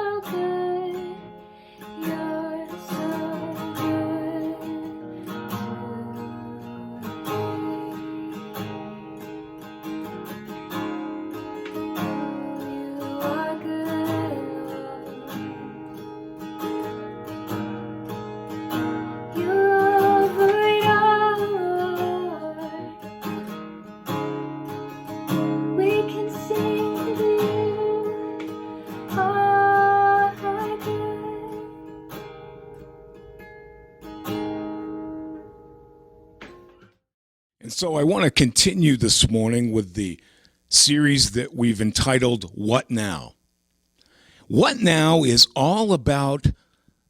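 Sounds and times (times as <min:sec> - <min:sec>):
acoustic guitar strummed and picked: 0:00.0 - 0:37.0.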